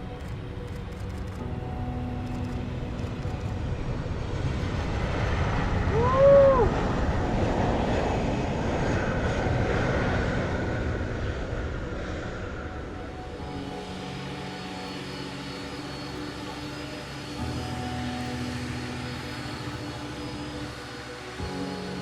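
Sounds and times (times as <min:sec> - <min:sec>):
rising and falling whoop: 0:05.8 - 0:07.2.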